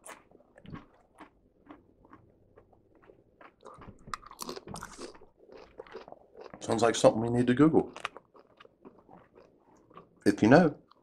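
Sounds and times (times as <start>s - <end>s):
chewing and crunching chips: 0.0s - 11.0s.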